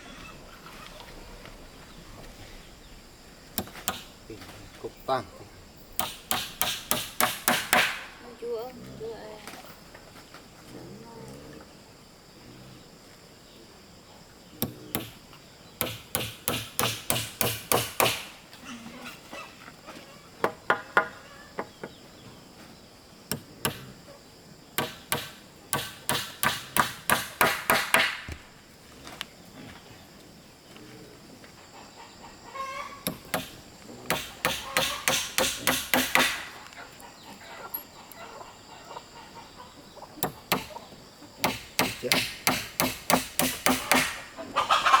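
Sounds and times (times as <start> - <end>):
hammer driving nails into wood: 3.6 - 4.1, 6.0 - 8.1, 14.6 - 15.2, 15.8 - 18.3, 23.3 - 23.9, 24.8 - 28.4, 33.1 - 36.5, 40.2 - 40.7, 41.4 - 44.2.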